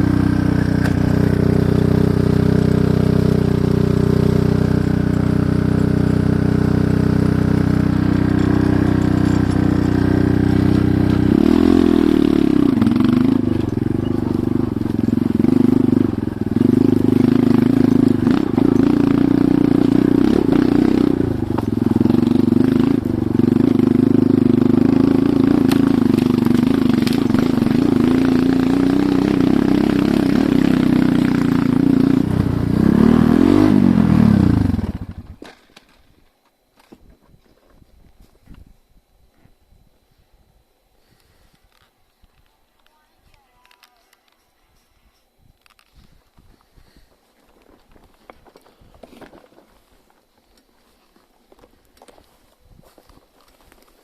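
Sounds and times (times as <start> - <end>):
motorcycle engine idling and revving: 0.0 - 35.5.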